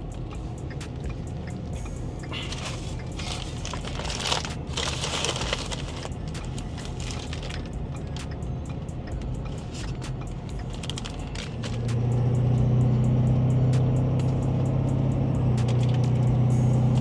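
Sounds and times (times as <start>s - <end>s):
road and engine rumble: 0.0s - 17.0s
loud crinkling hiss: 2.3s - 8.2s, 10.6s - 12.0s.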